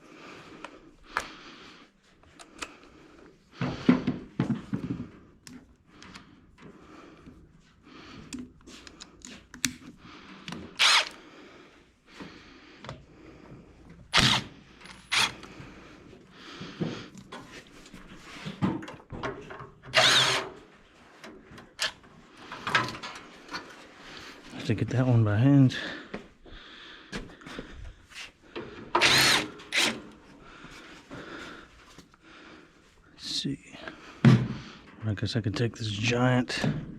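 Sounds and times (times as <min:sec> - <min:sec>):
clicks and knocks of tools: 0:08.2 - 0:11.2, 0:21.2 - 0:23.8
power tool spinning socket: 0:10.8 - 0:11.2, 0:14.1 - 0:15.5, 0:19.9 - 0:20.5, 0:29.0 - 0:30.1.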